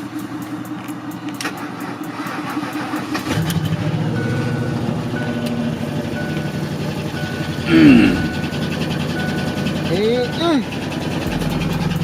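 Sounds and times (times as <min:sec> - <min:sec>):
truck engine cranking and running: 0:00.0 - 0:12.0
warning chime beeping: 0:06.1 - 0:12.0.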